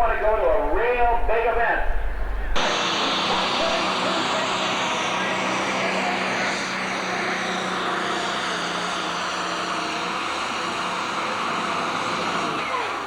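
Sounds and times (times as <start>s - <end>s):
tractor engine running under load: 2.6s - 13.0s.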